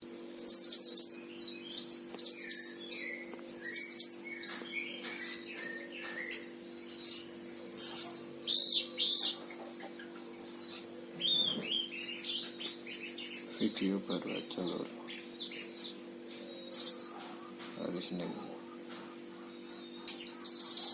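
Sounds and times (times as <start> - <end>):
faint steady hum: 0.0 - 20.9
songbird singing: 0.0 - 20.9.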